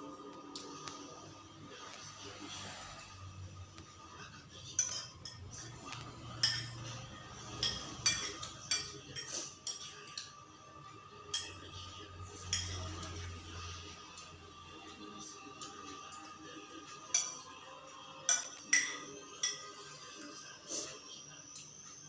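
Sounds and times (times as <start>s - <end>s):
cutlery clinking against dishes: 4.6s - 10.4s, 11.2s - 13.4s, 15.5s - 20.9s.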